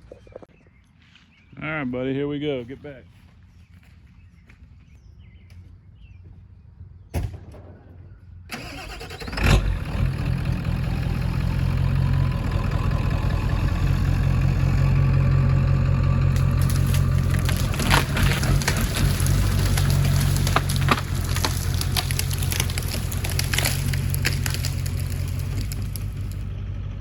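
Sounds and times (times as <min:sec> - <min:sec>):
diesel truck engine running: 0:08.5 - 0:27.0.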